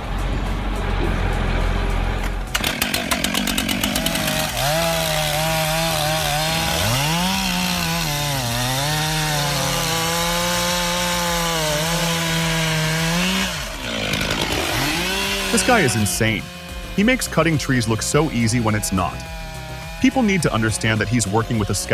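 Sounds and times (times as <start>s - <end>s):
chainsaw cutting wood: 2.2s - 21.9s.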